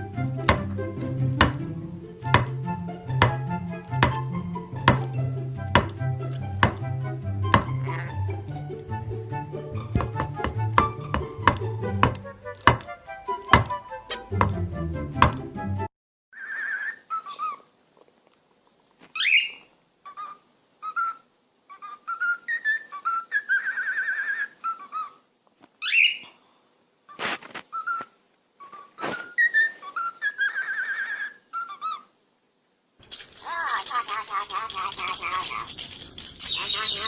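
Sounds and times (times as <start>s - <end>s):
parrot whistling: 19.2s - 25.2s, 27.7s - 32.0s, 36.4s - 37.0s.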